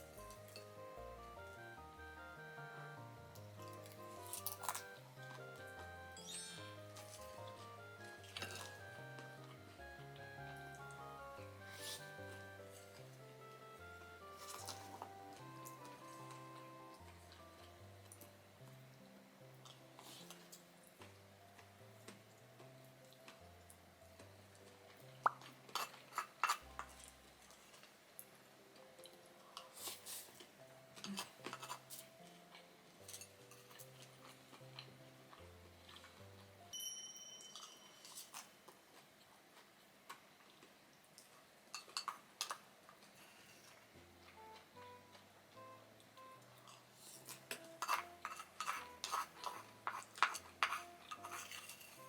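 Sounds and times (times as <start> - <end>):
soft background music: 0.0 - 40.0, 40.7 - 52.0
tableware clinking: 3.6 - 5.0, 8.2 - 8.9, 11.7 - 12.2, 14.4 - 16.4, 25.2 - 27.1, 31.0 - 32.0, 33.0 - 34.0, 36.7 - 38.5, 41.8 - 42.6, 46.7 - 52.0.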